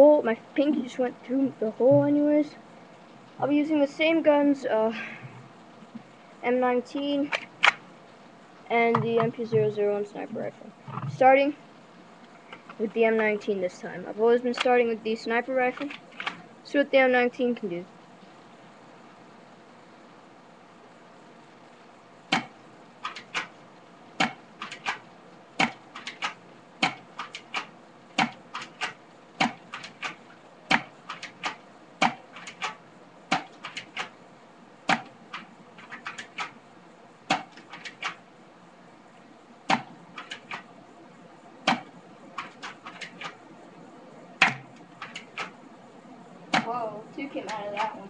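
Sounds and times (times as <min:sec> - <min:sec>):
airsoft pistol shots: 0:22.3 - 0:22.6, 0:24.2 - 0:25.0.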